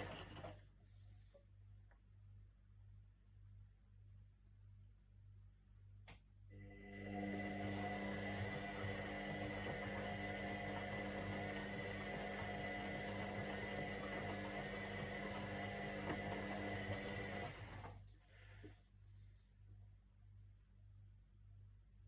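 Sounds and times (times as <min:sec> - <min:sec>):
washing machine motor whining: 0:00.0 - 0:00.6, 0:06.5 - 0:18.0
faint low hum: 0:17.8 - 0:22.0.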